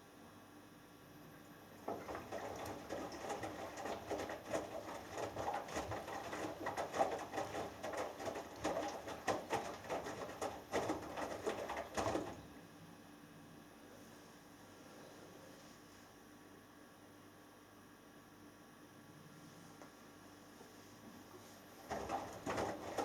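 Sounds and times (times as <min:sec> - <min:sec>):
laundry and water sloshing: 0:01.8 - 0:12.4, 0:21.8 - 0:23.0
washing machine drum turning: 0:01.8 - 0:12.4, 0:21.8 - 0:23.0
faint hum: 0:11.1 - 0:23.0.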